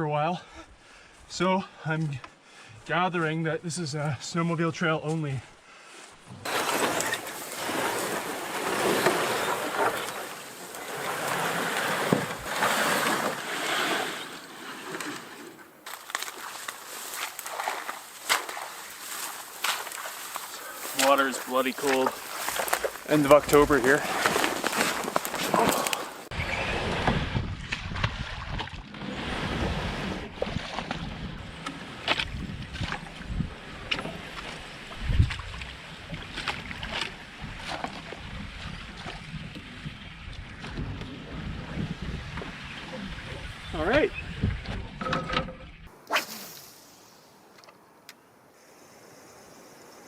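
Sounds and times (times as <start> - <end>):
footsteps splashing through water: 15.8 - 26.3, 27.6 - 28.9, 32.0 - 39.3.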